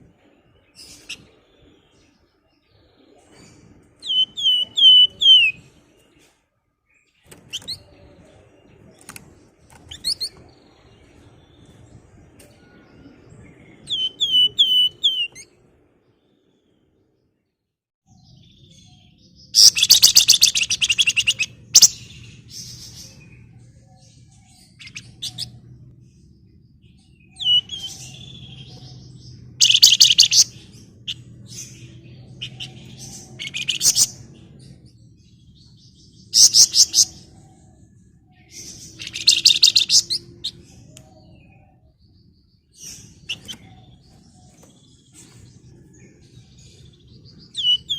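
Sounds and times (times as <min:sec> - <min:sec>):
faint low hum: 0:00.0 - 0:47.9
songbird trilling and chirping: 0:00.3 - 0:06.3, 0:06.9 - 0:15.6, 0:18.1 - 0:47.9.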